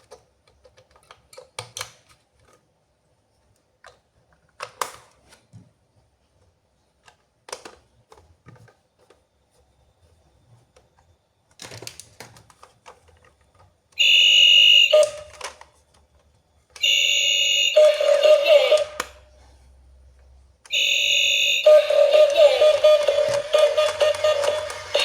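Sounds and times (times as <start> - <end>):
plastic toy packaging rustling: 11.5 - 14.2, 22.2 - 25.0
toy electronic buzzing tone: 14.0 - 15.5, 16.8 - 19.0, 20.7 - 25.0.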